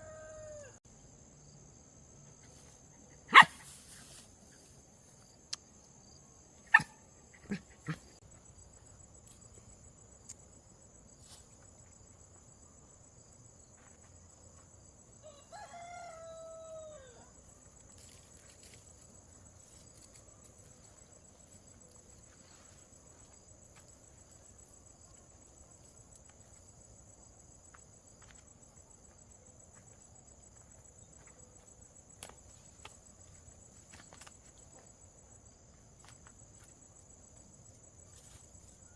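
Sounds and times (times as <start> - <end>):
rooster crowing: 0.0 - 0.8, 15.2 - 17.4.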